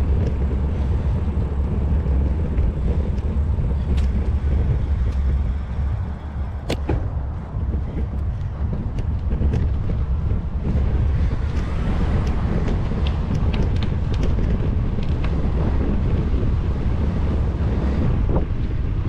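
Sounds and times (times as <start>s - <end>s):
wind buffeting microphone: 0.0s - 19.0s
light ticks: 11.5s - 15.4s.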